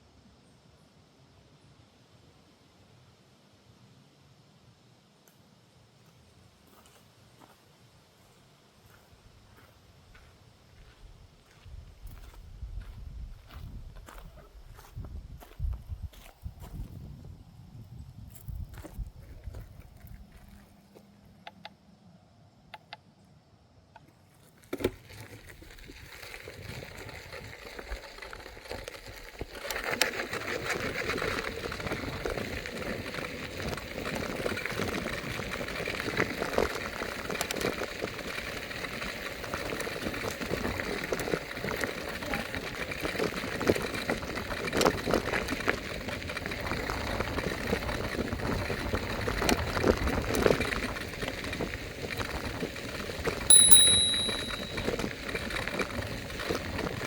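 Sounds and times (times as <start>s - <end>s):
electric scooter rolling: 24.4s - 57.0s.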